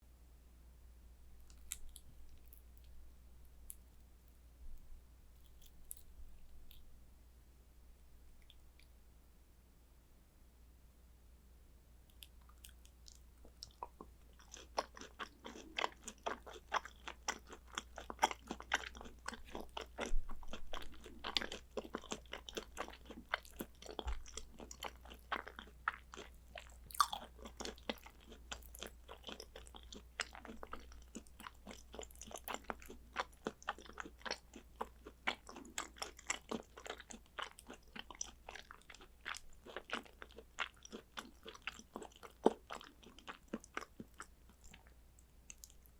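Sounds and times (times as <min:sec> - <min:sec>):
person chewing food: 0:01.4 - 0:03.0, 0:12.1 - 0:45.9.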